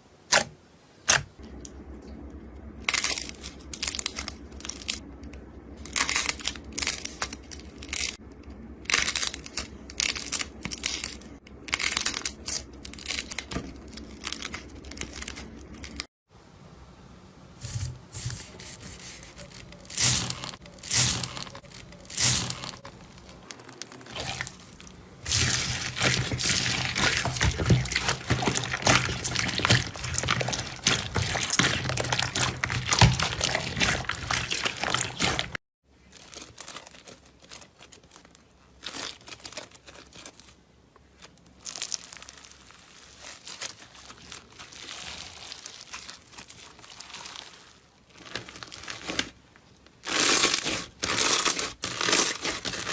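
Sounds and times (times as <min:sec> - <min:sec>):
slime squishing and crackling: 0:18.4 - 0:52.9.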